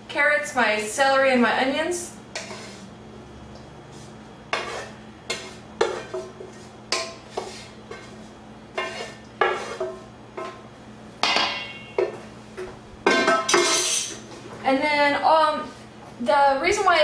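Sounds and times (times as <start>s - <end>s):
utensil scraping and clanking pan: 2.3s - 2.9s, 4.5s - 10.6s, 13.0s - 14.2s.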